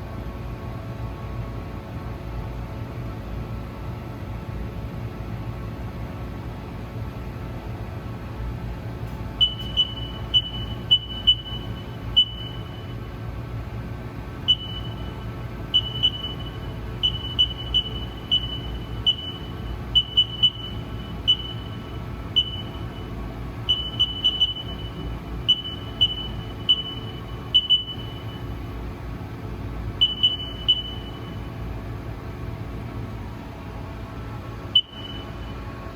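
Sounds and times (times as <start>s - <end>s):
steady low hum: 0.0s - 35.9s
short high beeps: 9.4s - 13.0s, 14.5s - 15.1s, 15.8s - 23.1s, 23.7s - 28.5s, 30.0s - 31.4s, 34.8s - 35.4s.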